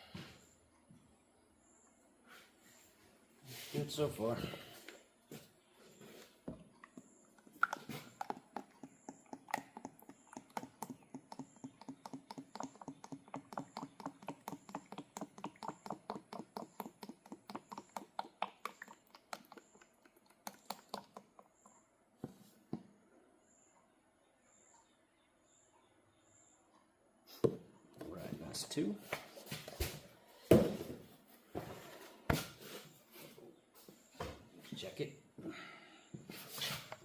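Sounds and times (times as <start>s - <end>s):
oil glugging from a bottle: 6.6s - 21.6s.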